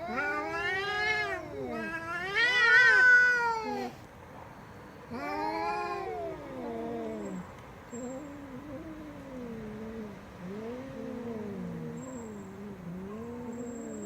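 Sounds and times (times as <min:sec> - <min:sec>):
cat yowling: 0:00.0 - 0:04.0, 0:05.1 - 0:07.4.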